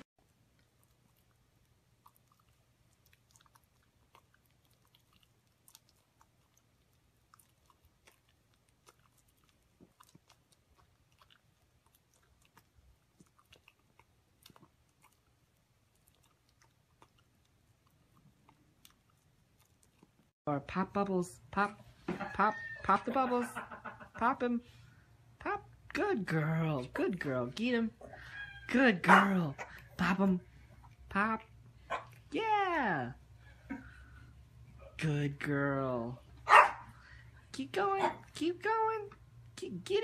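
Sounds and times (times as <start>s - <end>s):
low steady hum: 0.2s - 40.0s
dog chewing food: 0.3s - 20.3s.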